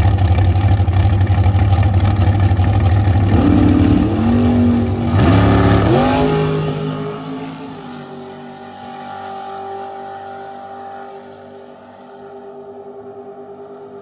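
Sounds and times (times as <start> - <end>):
drag racing car engine accelerating: 0.0 - 14.0.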